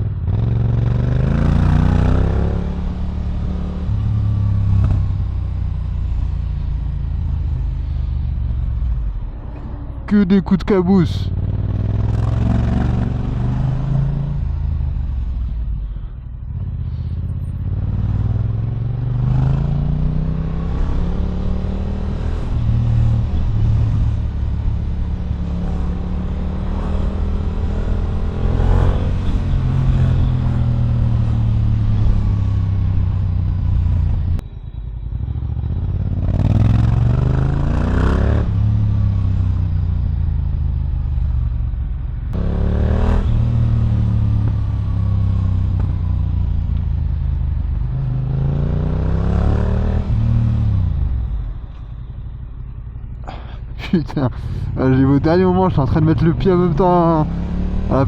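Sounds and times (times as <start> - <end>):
motorcycle engine accelerating: 0.0 - 10.1, 11.3 - 16.0, 16.6 - 58.0.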